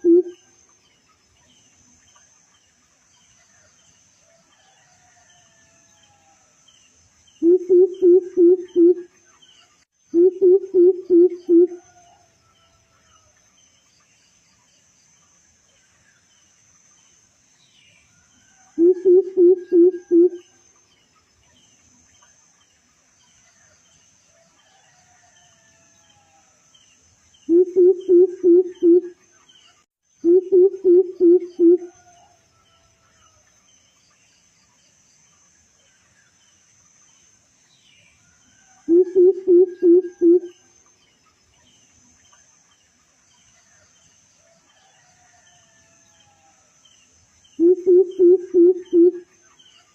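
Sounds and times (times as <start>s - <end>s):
deep hooting bird call: 0.0s - 0.4s, 7.4s - 9.0s, 10.2s - 11.8s, 18.8s - 20.4s, 27.5s - 29.1s, 30.2s - 32.0s, 38.9s - 40.5s, 47.6s - 49.2s
faint bird chirps: 0.0s - 3.9s, 7.3s - 12.2s, 17.8s - 20.6s, 27.4s - 32.4s, 37.8s - 42.8s, 47.4s - 49.9s
high-pitched insect trill: 0.0s - 49.9s
small bird chirps: 7.3s - 11.9s, 47.5s - 49.9s.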